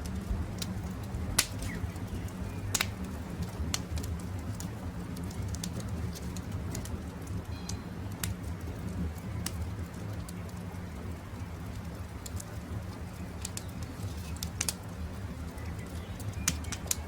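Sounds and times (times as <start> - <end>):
campfire crackling: 0.0 - 17.0
low steady rumble: 0.0 - 17.0
sharp pops and snaps of fire: 0.0 - 17.0.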